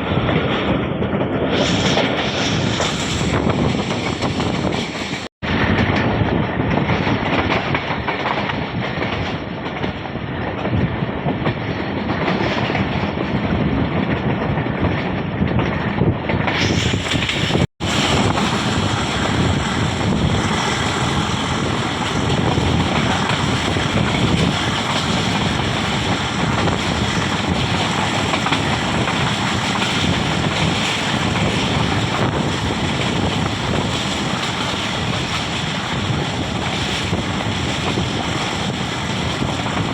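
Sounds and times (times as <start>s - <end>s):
train rumble and clickety-clack: 0.0s - 39.9s
wind noise on microphone: 0.0s - 39.9s.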